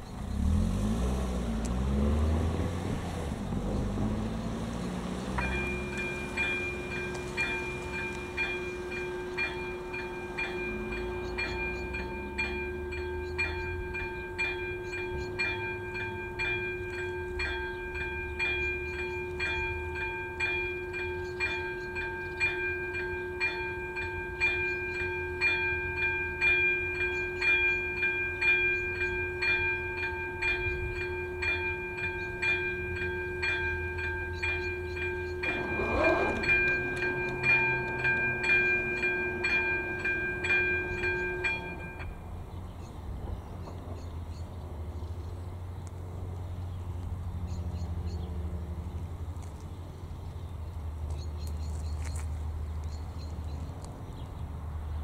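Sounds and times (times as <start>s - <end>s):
level crossing bell ringing: 5.3s - 42.3s.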